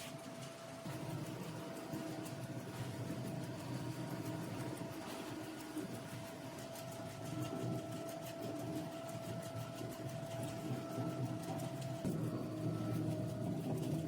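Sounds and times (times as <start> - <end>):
machine humming: 0.0 - 14.0
machine whine: 0.0 - 14.0.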